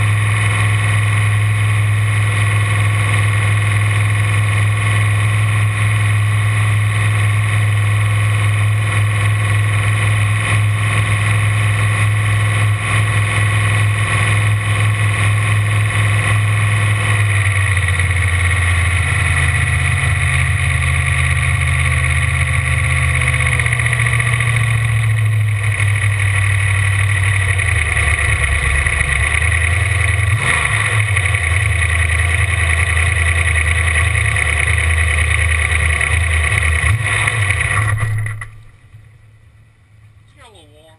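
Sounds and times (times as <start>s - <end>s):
boat engine running: 0.0s - 40.9s.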